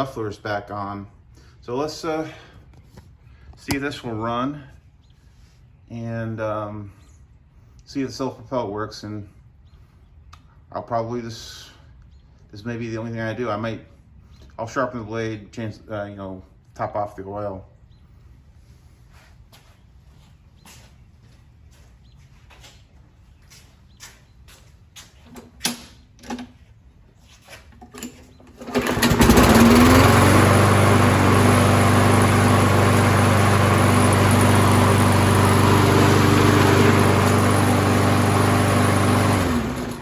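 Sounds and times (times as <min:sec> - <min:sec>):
lawn mower engine running: 0:27.9 - 0:40.0.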